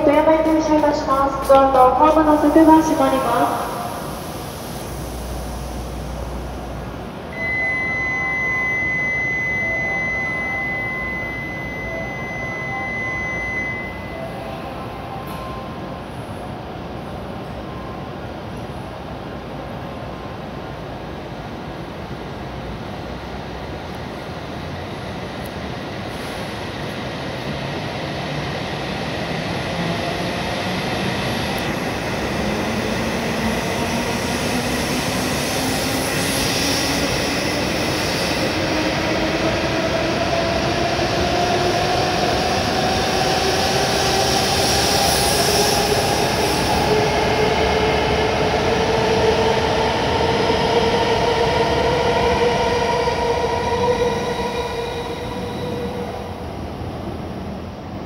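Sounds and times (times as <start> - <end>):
train wheels rushing on rails: 20.6 - 58.0.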